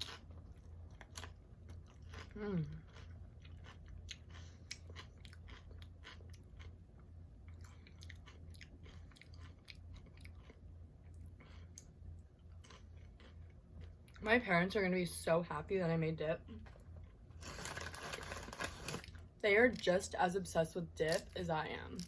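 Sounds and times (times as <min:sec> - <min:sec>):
crisp chewing crunches: 0:00.0 - 0:06.8, 0:07.4 - 0:14.2, 0:16.8 - 0:19.2
low steady hum: 0:00.0 - 0:22.0.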